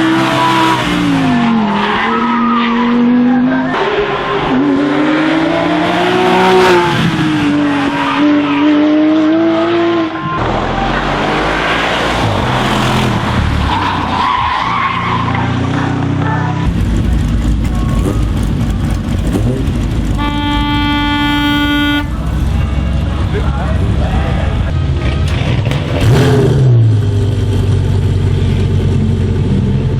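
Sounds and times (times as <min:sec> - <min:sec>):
race car engines revving: 0:00.0 - 0:29.9
low rumble: 0:16.6 - 0:29.4
steady held note: 0:20.2 - 0:23.4.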